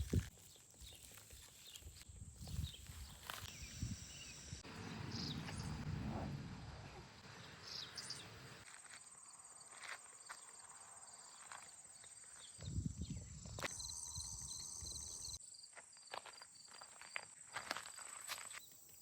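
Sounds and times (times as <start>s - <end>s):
crickets trilling: 0.0s - 5.8s, 7.7s - 19.0s
low rumble: 4.7s - 7.4s.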